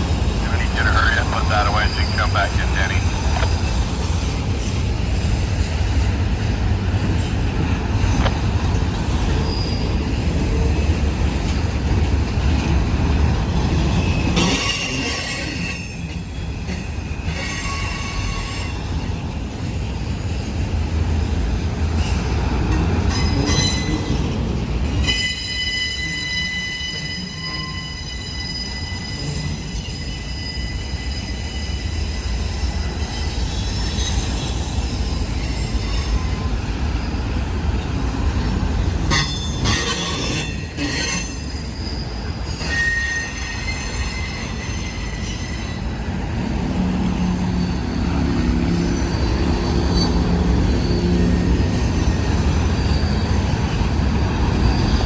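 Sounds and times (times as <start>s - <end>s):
freight train rumbling past: 0.0s - 55.0s
high-pitched wheel squeal: 40.0s - 45.7s.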